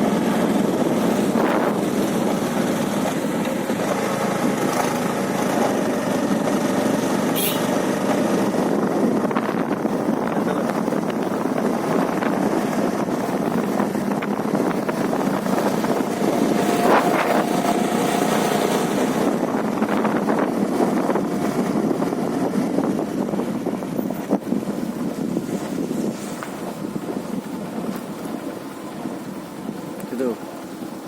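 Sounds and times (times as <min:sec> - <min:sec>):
steady rushing noise: 0:00.0 - 0:31.0
brief tone: 0:07.4 - 0:07.7.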